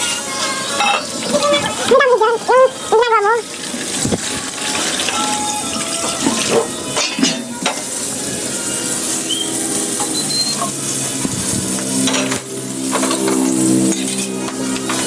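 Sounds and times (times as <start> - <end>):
food sizzling in a pan: 0.0 - 15.0
utensil stirring and knocking pan: 3.7 - 15.0.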